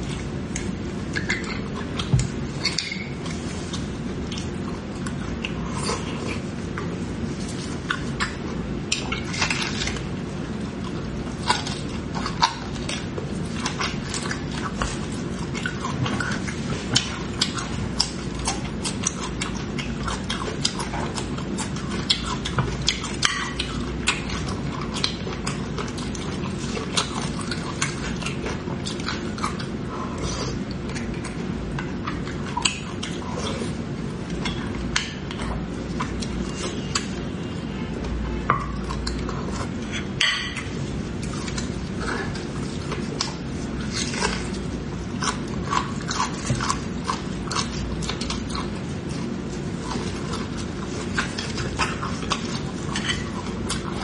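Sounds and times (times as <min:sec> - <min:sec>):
wet chewing: 0:00.0 - 0:54.0.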